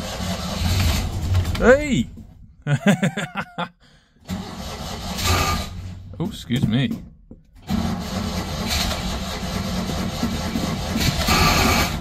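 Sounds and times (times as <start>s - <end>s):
car engine starting and running: 0.0s - 12.0s.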